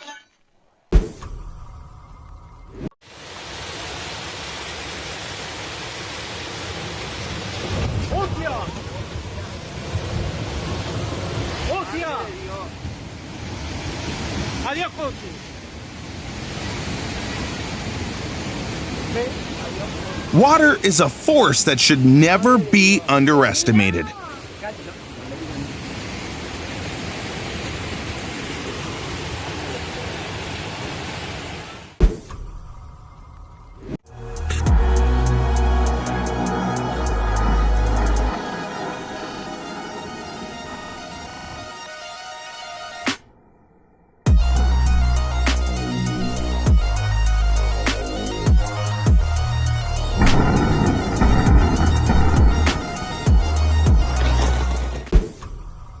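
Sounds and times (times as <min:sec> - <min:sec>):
fast-moving water rushing: 0:03.0 - 0:32.0
driving rain: 0:03.1 - 0:31.5, 0:34.2 - 0:41.9, 0:44.3 - 0:56.0
storm wind roaring: 0:34.8 - 0:41.8, 0:49.8 - 0:55.2.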